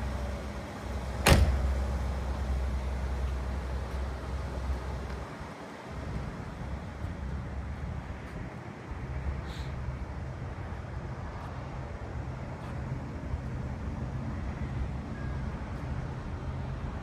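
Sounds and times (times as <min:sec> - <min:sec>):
car engine droning: 0:00.0 - 0:07.0.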